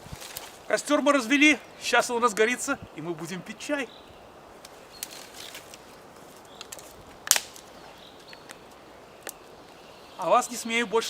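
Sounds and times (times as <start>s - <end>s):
campfire crackling: 0.0s - 11.0s
loud crack of fire: 6.6s - 7.8s
sharp pops of fire: 6.6s - 9.4s.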